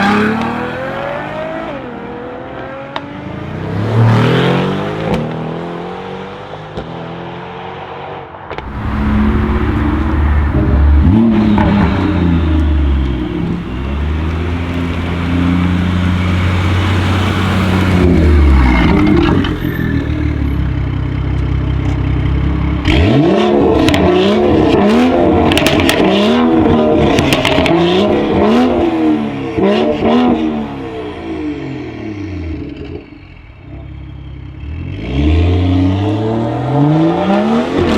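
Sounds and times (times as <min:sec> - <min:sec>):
exhaust crackles and pops: 0:08.6 - 0:15.2
car engine revving: 0:08.6 - 0:21.0, 0:21.8 - 0:33.9.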